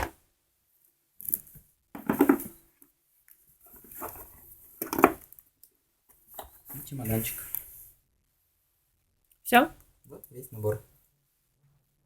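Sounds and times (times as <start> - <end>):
rustling and scraping of parts: 1.2 - 5.4.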